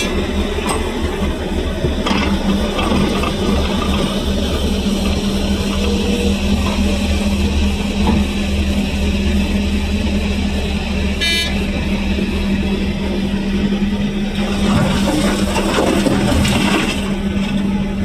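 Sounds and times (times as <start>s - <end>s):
heavy machinery engine droning: 0.0s - 18.0s
short high-pitched toot: 11.2s - 11.7s.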